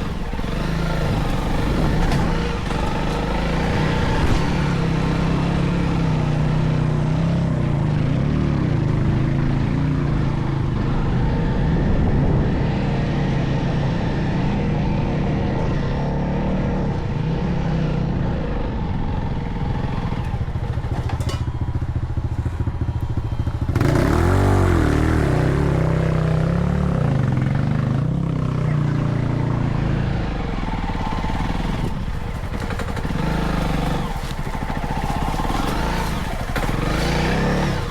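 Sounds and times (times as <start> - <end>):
vehicle engine running: 0.0 - 37.9.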